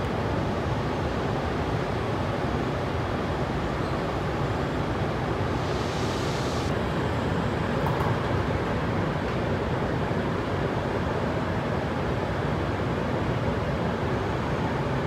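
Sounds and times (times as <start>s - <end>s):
station ventilation: 0.0s - 15.0s
short hiss of air: 5.4s - 6.7s.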